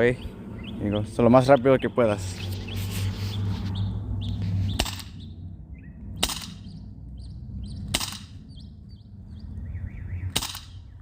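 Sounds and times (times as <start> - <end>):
birds chirping: 0.0 - 11.0
airsoft pistol shots: 4.8 - 5.2, 6.2 - 6.7, 7.9 - 8.4, 10.3 - 10.9.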